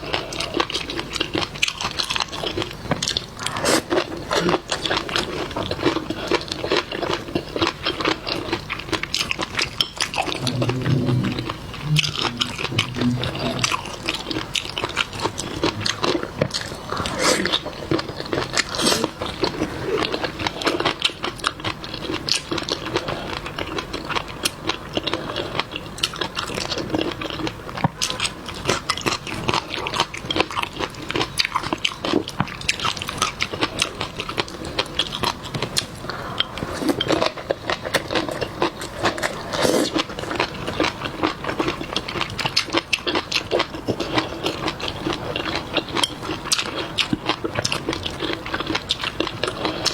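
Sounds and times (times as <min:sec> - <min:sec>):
chewing seafood wet crunching: 0:00.0 - 0:49.9.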